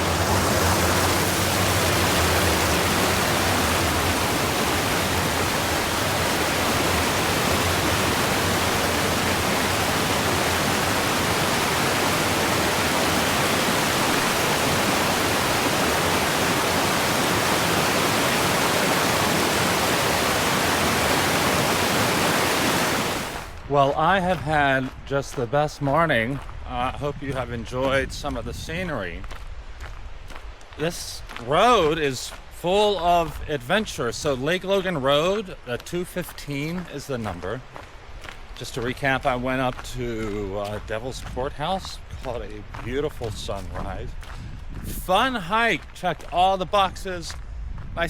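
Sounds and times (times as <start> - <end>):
creek rushing over rocks: 0.0 - 26.0.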